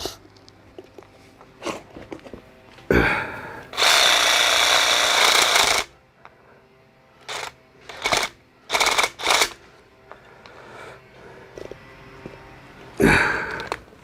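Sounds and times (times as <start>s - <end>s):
handheld power tool running: 3.5s - 13.9s.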